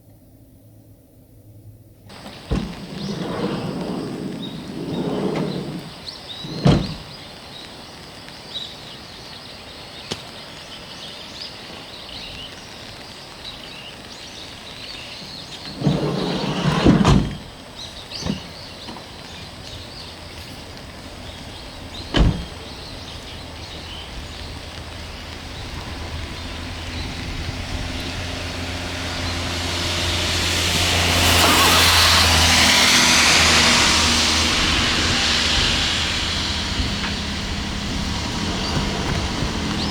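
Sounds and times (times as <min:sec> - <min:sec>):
broad rushing noise: 0:02.1 - 0:07.2, 0:19.9 - 0:39.9
vehicle door thudding shut: 0:02.1 - 0:07.2, 0:15.7 - 0:17.6, 0:21.8 - 0:23.4, 0:31.0 - 0:39.9
vehicle engine starting and humming: 0:02.1 - 0:07.2, 0:15.3 - 0:39.9.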